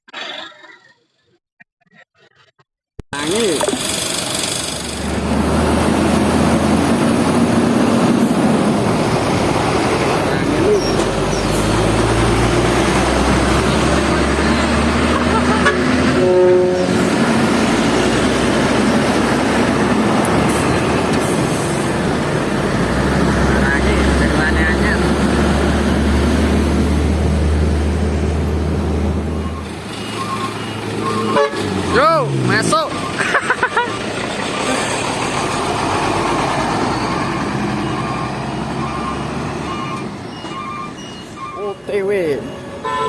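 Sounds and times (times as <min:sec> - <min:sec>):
road and running noise: 0:03.2 - 0:43.0
truck diesel engine under load: 0:03.2 - 0:43.0.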